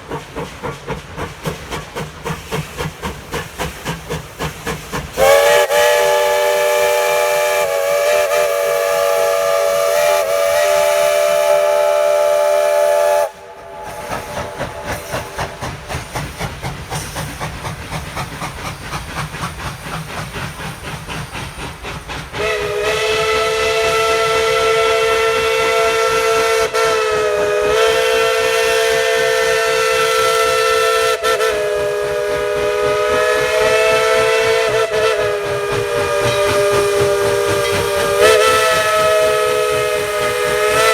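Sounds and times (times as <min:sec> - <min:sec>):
steam engine exhaust chuffing: 0:00.0 - 0:40.9
steam locomotive chime whistle: 0:05.2 - 0:16.2, 0:22.4 - 0:40.9.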